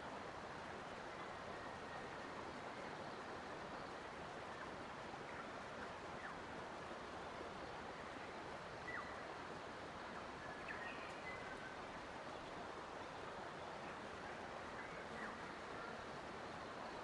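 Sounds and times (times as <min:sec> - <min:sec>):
faint bird chirps: 0:08.8 - 0:09.3, 0:10.2 - 0:17.0.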